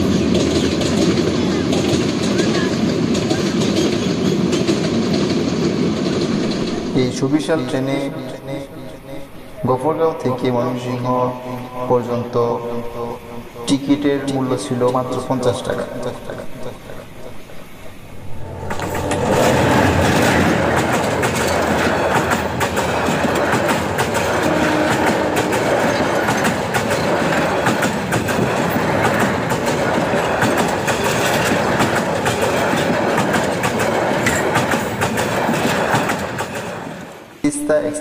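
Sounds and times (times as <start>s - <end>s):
train wheels clattering: 0.0s - 9.0s, 14.8s - 37.3s.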